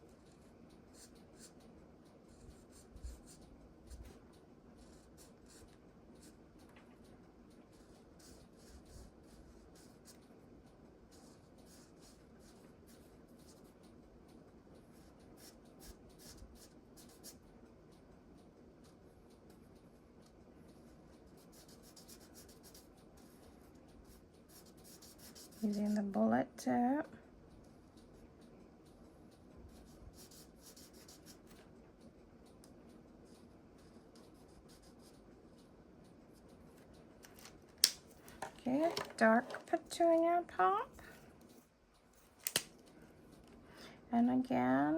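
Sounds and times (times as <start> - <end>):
marker scratching on cardstock: 7.7 - 10.2, 24.1 - 26.1.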